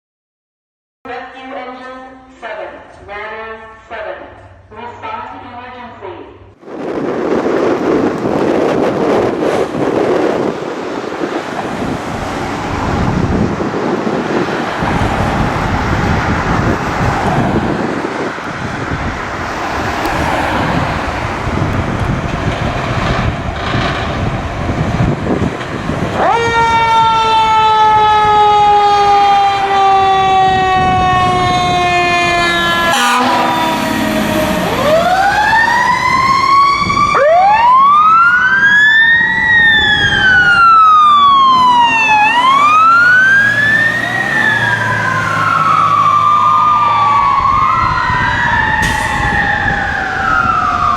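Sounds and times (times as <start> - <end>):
road noise: 6.4 - 50.9
heavy truck engine: 6.7 - 28.4, 31.0 - 37.0, 39.0 - 50.9.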